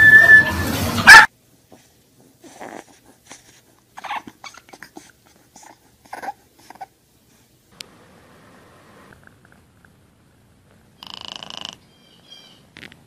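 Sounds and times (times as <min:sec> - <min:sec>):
dogs barking loudly: 0:01.0 - 0:01.3
puppy whimpering: 0:02.4 - 0:06.9.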